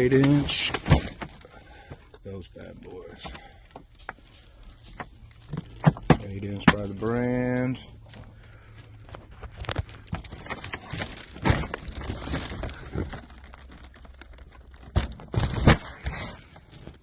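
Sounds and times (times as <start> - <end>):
cardboard boxes rustling and thudding: 0.0 - 1.6, 9.0 - 17.0.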